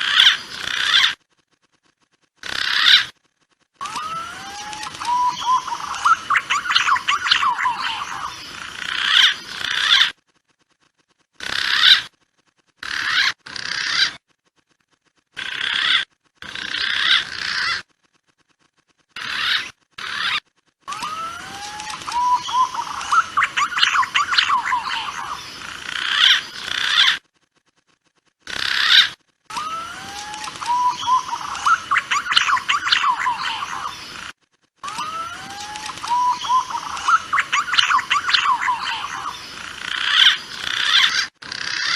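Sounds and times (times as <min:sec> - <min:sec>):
recorded pigeon calls: 0:03.8 - 0:10.1, 0:19.2 - 0:27.2, 0:28.5 - 0:41.9.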